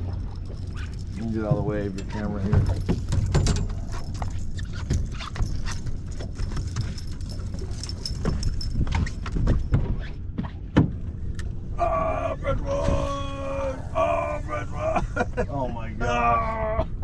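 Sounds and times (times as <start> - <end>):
knocks and clatter on boat deck: 0.0 - 11.5
steady low rumble: 0.0 - 17.0.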